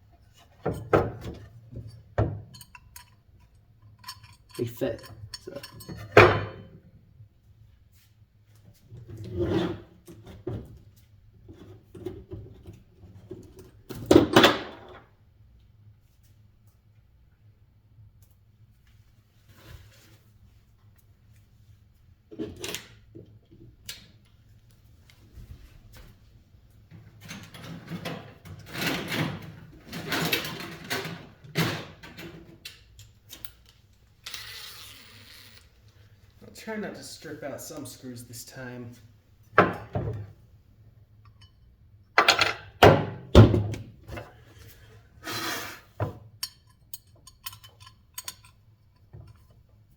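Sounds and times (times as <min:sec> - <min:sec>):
metal parts scraping and rattling: 0:02.5 - 0:06.2, 0:34.2 - 0:35.7
metal parts scraping: 0:34.3 - 0:35.7.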